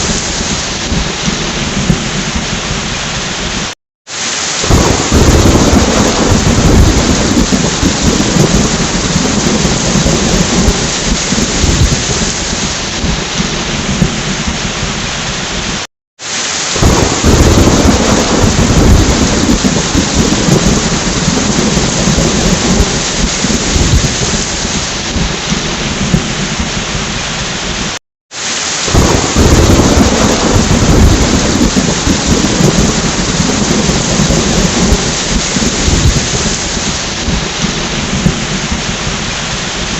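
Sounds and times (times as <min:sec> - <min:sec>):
rolling thunder: 0:00.0 - 0:03.7, 0:04.6 - 0:15.8, 0:16.8 - 0:28.0, 0:28.8 - 0:39.9
heavy rain: 0:00.0 - 0:39.9.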